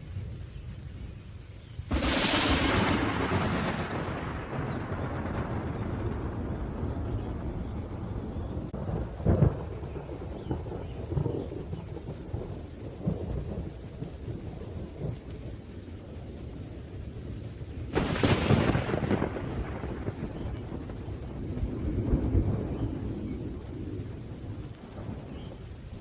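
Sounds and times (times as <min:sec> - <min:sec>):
rain: 0:00.0 - 0:26.0
thunder crack: 0:01.9 - 0:11.8, 0:17.9 - 0:25.3
rolling thunder: 0:01.9 - 0:26.0.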